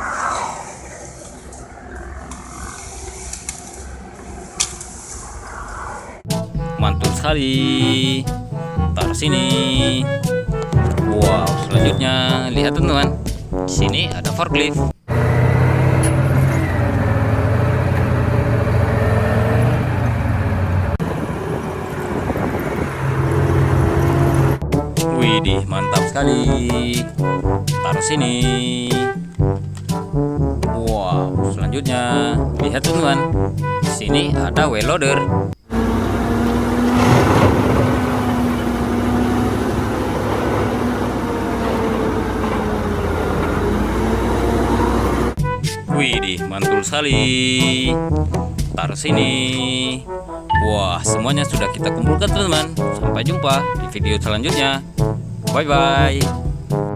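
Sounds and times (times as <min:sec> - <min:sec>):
motor vehicle engine hum: 0:00.0 - 0:12.4, 0:14.9 - 0:25.1, 0:35.5 - 0:45.4.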